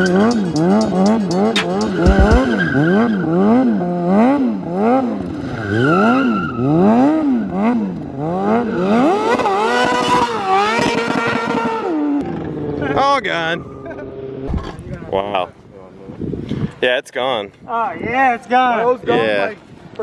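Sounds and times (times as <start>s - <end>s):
small engine revving: 0.0s - 12.9s.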